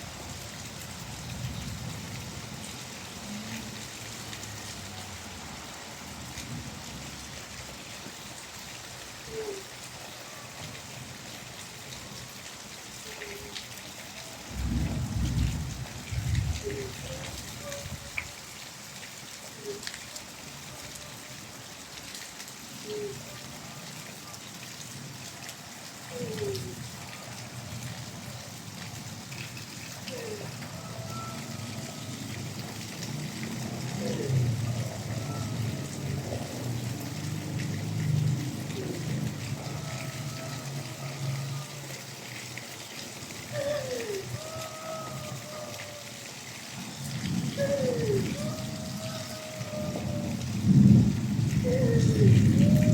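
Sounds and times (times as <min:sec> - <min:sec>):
rain falling: 0:00.0 - 0:52.9.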